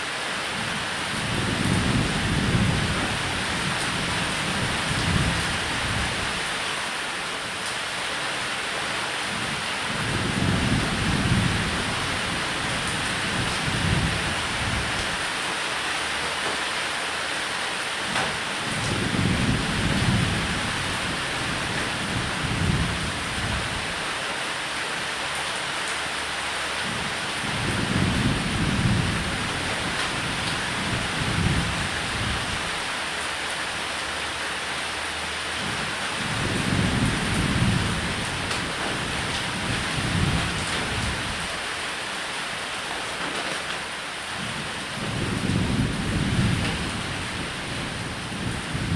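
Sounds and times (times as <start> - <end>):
heavy rain on a roof: 0.0 - 48.9
low rolls of thunder: 9.9 - 15.2, 18.6 - 23.8, 26.8 - 32.8, 35.6 - 41.6, 44.4 - 48.9.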